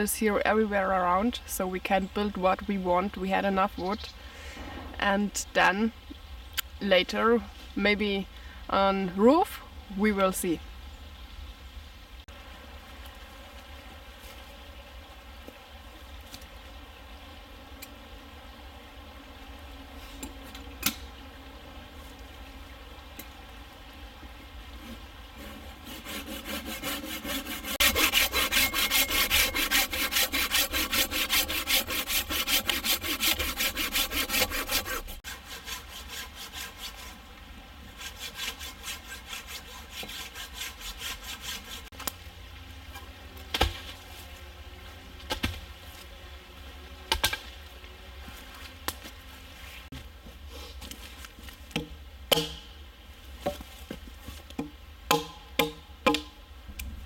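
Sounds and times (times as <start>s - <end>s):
hand saw cutting wood: 24.8s - 37.2s, 37.9s - 41.9s
sharp knocks of wood: 51.7s - 52.7s, 54.6s - 56.3s.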